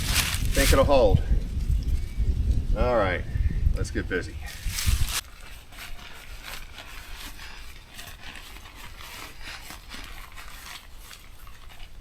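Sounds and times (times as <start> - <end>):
camping gear clinks and rustles: 0.0 - 2.3, 4.4 - 12.0
wind rumble on microphone: 0.0 - 5.2.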